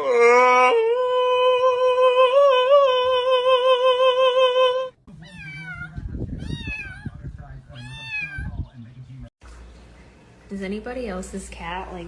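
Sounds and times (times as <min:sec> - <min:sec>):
cat meowing: 0:05.2 - 0:07.1, 0:07.8 - 0:08.5
cat yowling: 0:05.2 - 0:07.1, 0:07.8 - 0:08.5.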